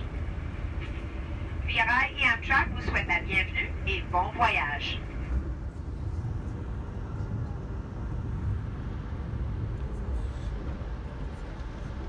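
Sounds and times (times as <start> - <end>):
train car running noise: 0.0 - 12.0.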